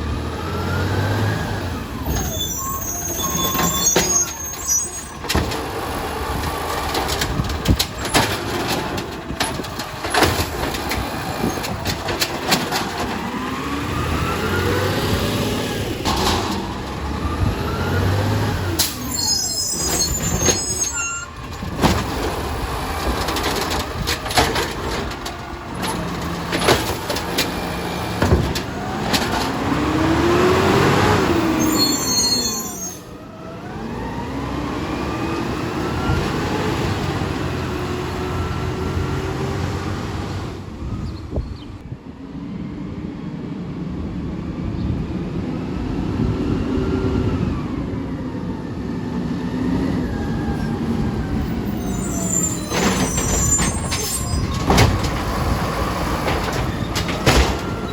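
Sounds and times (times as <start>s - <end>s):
diesel engine revving: 0.0s - 41.9s, 45.3s - 57.9s
metal clanking and banging: 6.4s - 13.4s, 16.0s - 17.0s, 19.8s - 29.7s, 52.7s - 57.9s.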